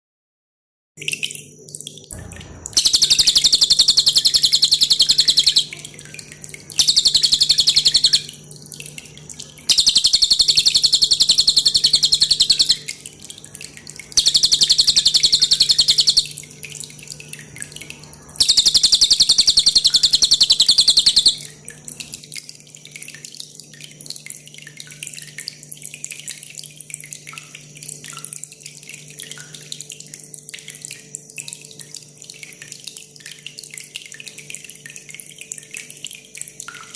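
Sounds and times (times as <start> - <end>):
water dripping and trickling: 1.0 - 36.9
bird singing high trills: 2.8 - 8.4, 9.7 - 13.4, 14.1 - 16.4, 18.2 - 21.6.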